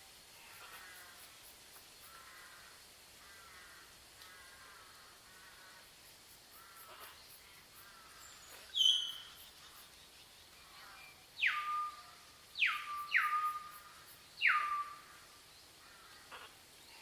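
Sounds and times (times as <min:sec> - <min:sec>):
faint harsh bird call: 0:07.8 - 0:09.5.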